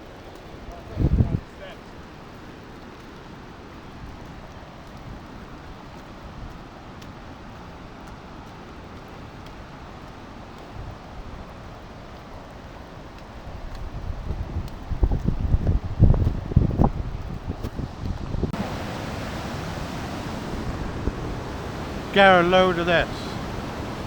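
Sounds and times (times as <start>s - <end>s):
wind buffeting microphone: 0.6s - 1.7s, 10.5s - 24.0s
waterfall rushing: 18.4s - 24.0s.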